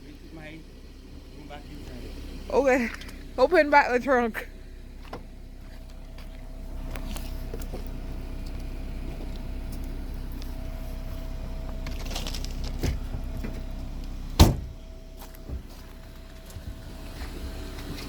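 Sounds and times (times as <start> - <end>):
tailgate thump: 12.8 - 13.7, 14.4 - 14.8.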